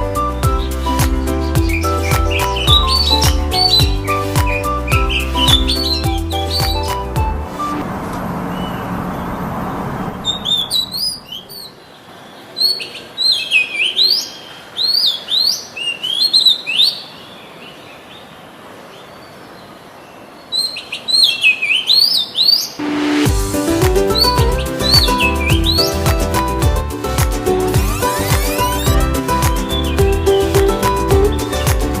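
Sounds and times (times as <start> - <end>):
songbird whistling: 0.2 - 7.8, 10.2 - 11.7, 24.1 - 26.1, 27.9 - 31.6.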